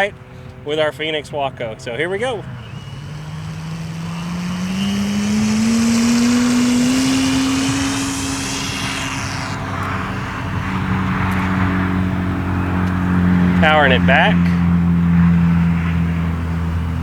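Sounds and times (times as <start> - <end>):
model plane propeller and motor: 1.5 - 14.6.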